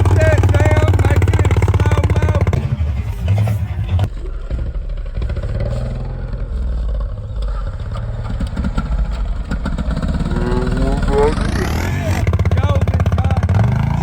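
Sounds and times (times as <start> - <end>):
atv engine revving: 0.0 - 14.0.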